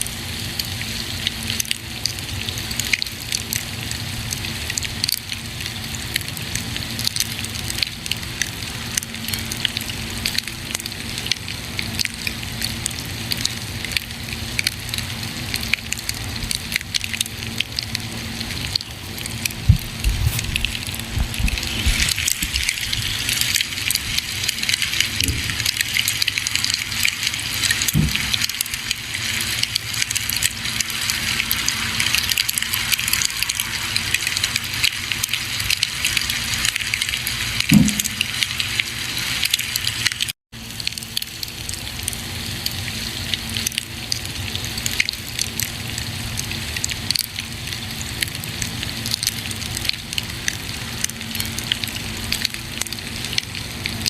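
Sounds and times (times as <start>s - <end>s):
deep fire pops: 19.5s - 23.0s, 27.9s - 28.5s.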